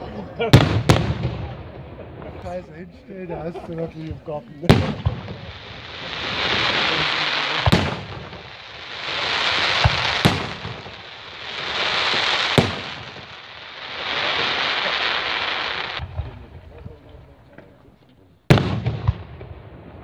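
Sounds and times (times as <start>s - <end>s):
firework bangs: 0.5s - 2.5s, 4.1s - 16.6s, 18.5s - 20.0s
crackling hiss of fireworks: 3.8s - 17.2s.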